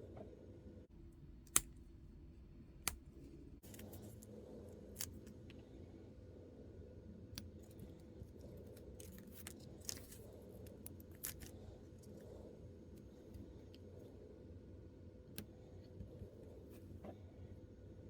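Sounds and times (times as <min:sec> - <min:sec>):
low steady hum: 0:00.0 - 0:18.0
plastic pieces clicking and snipping: 0:08.7 - 0:11.6.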